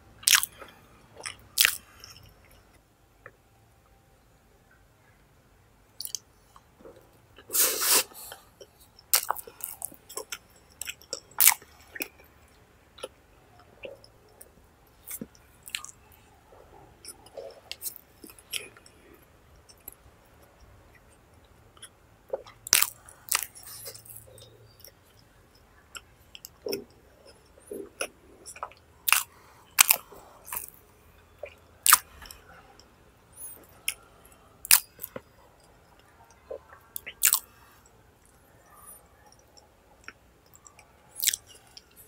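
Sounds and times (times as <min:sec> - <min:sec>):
man chewing: 0:00.2 - 0:02.8, 0:06.0 - 0:12.3, 0:13.0 - 0:16.1, 0:21.8 - 0:32.6, 0:33.4 - 0:37.5, 0:39.5 - 0:42.0.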